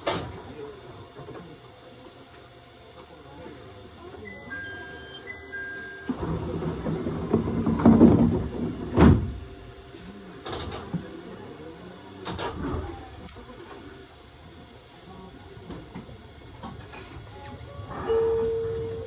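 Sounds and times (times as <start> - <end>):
train doors sliding shut: 6.1 - 9.5, 10.4 - 11.1, 12.2 - 13.0, 16.6 - 19.0.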